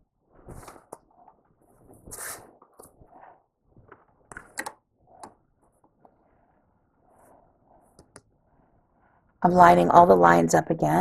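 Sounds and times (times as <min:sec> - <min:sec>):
fabric rustling: 0:00.2 - 0:04.3.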